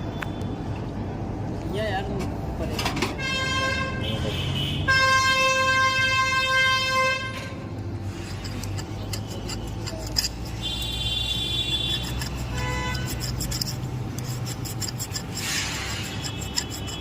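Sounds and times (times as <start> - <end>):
low rumble of engines: 0.0 - 17.0
vehicle horn: 3.2 - 7.6, 10.6 - 13.1
short horn-like tones: 10.6 - 13.2.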